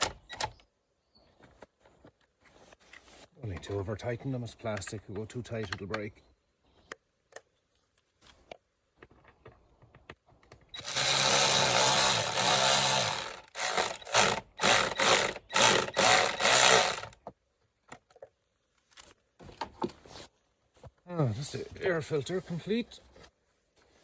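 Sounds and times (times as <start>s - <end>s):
cordless power driver screwing: 10.8s - 17.2s.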